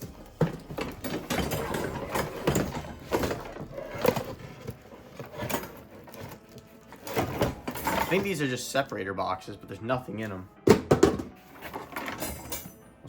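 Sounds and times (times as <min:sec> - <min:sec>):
cardboard packaging rustling: 0:00.0 - 0:08.5.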